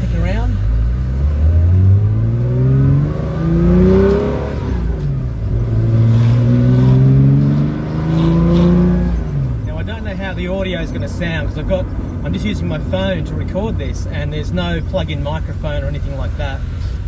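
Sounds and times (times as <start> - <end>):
car engine accelerating through gears: 0.0 - 9.7.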